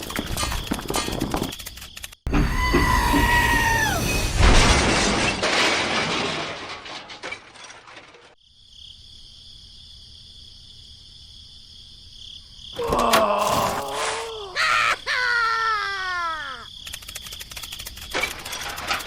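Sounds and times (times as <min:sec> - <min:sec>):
something shattering: 0:03.8 - 0:08.4.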